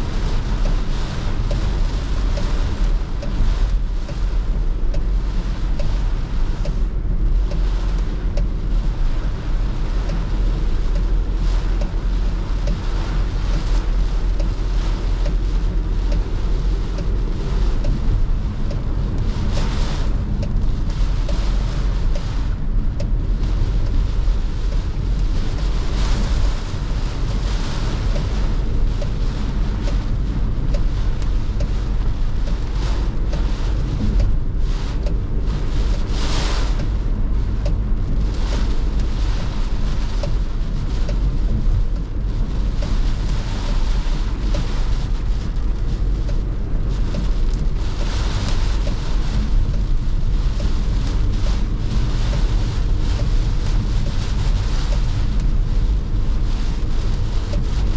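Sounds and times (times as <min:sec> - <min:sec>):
hiss of rain and tyre spray: 0:00.0 - 0:57.9
low rumble of road and engine: 0:00.0 - 0:57.9.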